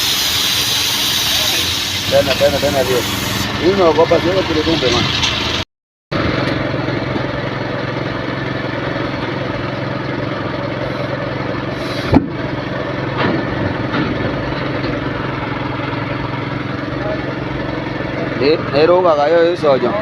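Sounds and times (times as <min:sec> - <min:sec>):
engine idling: 0:00.0 - 0:20.0
sharp bang: 0:13.1 - 0:14.6.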